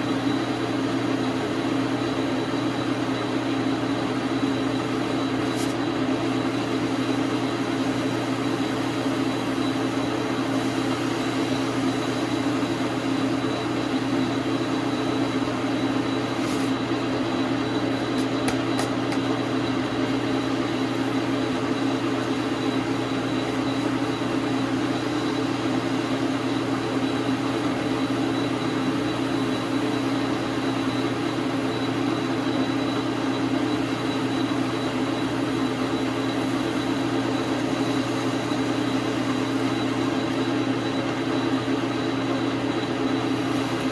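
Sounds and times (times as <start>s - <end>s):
lathe running: 0.1s - 43.9s.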